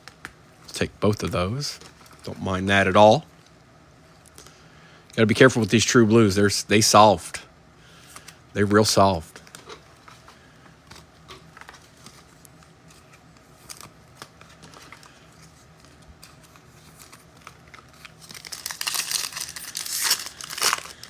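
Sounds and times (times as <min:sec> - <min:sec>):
card pack wrapper tearing: 0:13.5 - 0:21.0.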